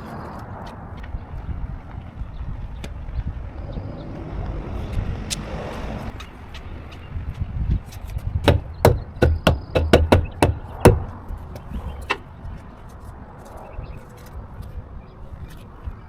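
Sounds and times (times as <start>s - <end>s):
sharp knocks: 8.4s - 12.2s.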